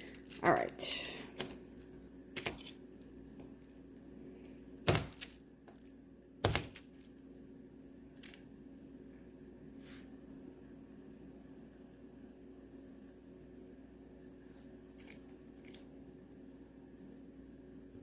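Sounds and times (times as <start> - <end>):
knife chopping wax: 2.3 - 2.8, 4.8 - 5.4, 6.4 - 6.8.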